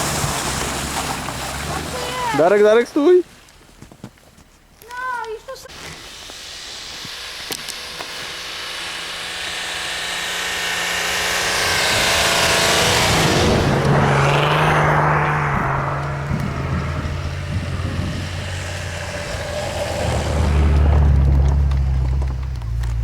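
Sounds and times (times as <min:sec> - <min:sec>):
off-road engine under load: 0:00.0 - 0:03.5, 0:04.5 - 0:23.0
rushing hiss: 0:05.6 - 0:15.1.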